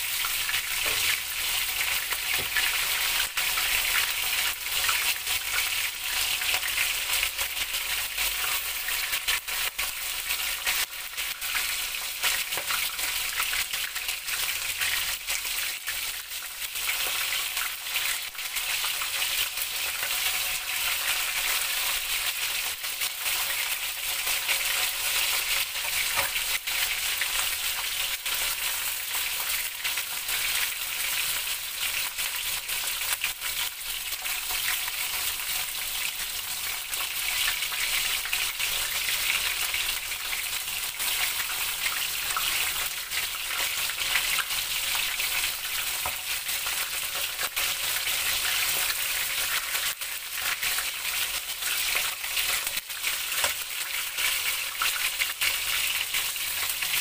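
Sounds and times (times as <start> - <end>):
chicken frying in hot oil: 0.0 - 57.0.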